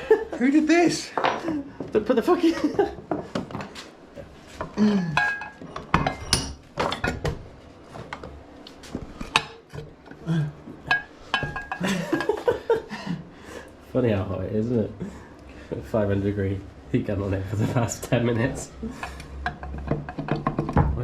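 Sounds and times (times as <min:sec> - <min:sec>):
metal tools clinking on engine: 0:05.2 - 0:07.2.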